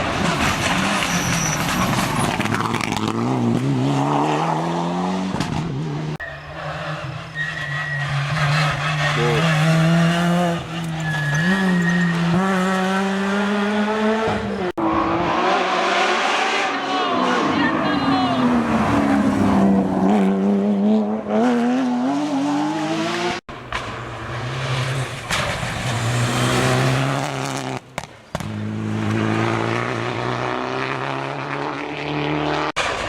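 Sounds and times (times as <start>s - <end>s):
rally car engine revving: 0.0s - 33.0s
tyre squeal: 0.4s - 2.5s, 6.2s - 9.8s, 10.6s - 12.6s.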